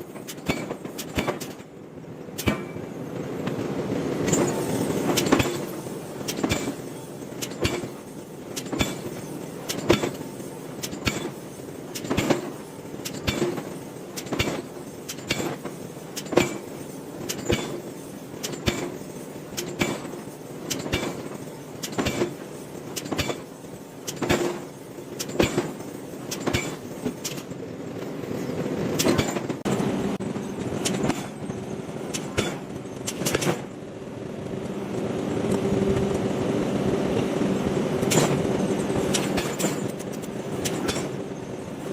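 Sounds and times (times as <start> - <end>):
hammer striking hot iron: 2.4 - 2.8, 32.1 - 33.7.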